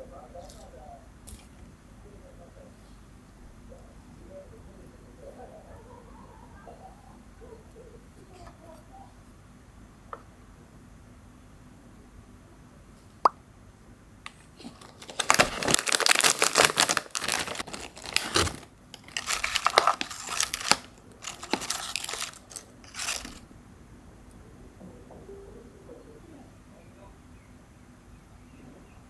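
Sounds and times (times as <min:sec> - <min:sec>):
crinkling and tearing: 0:14.2 - 0:23.4.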